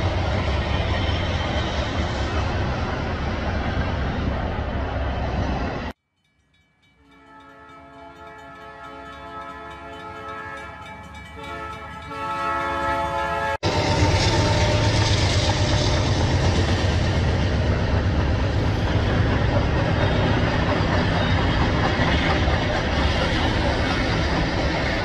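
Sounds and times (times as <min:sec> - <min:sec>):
train wheels on rails: 0:00.0 - 0:06.0, 0:06.8 - 0:25.0
multi-tone train horn: 0:07.0 - 0:15.9.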